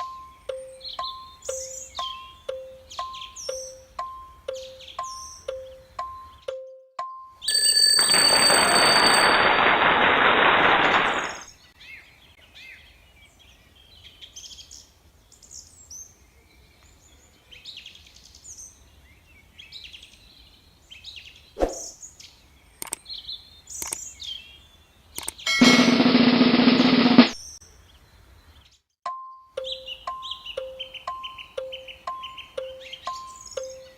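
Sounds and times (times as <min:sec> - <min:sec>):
small birds chirping: 0:00.0 - 0:06.8, 0:11.4 - 0:25.5, 0:27.4 - 0:33.9
sharp clicks: 0:22.8 - 0:23.0, 0:23.8 - 0:24.1, 0:25.2 - 0:25.4.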